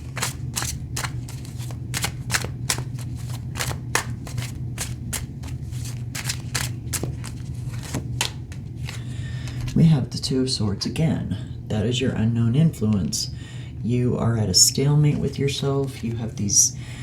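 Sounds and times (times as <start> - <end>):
cards being shuffled: 0.0 - 9.8, 15.7 - 16.2.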